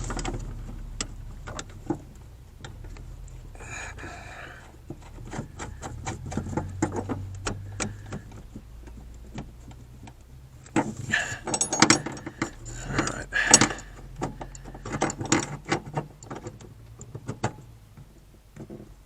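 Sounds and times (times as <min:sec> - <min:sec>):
metal clattering: 0:10.6 - 0:16.5
hand tools clinking on metal: 0:10.7 - 0:15.6.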